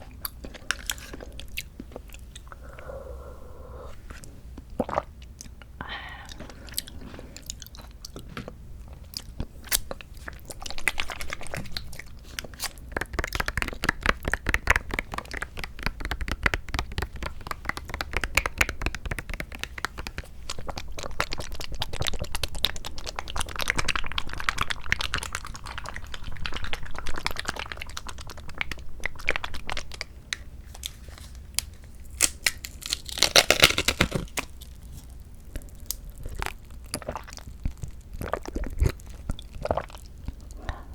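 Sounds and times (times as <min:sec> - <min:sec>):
chewing fruit: 0:06.3 - 0:16.3.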